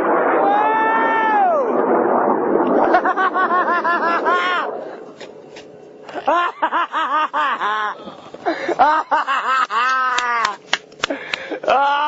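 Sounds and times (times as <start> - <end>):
person laughing excitedly: 2.8 - 4.7, 6.1 - 12.0
person crying out: 4.3 - 4.7, 11.6 - 12.0.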